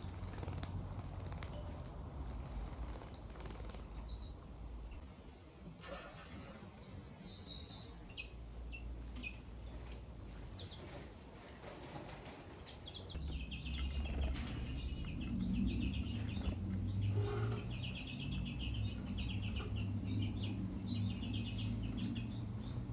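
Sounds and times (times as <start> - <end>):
finch chirps: 12.8 - 22.9.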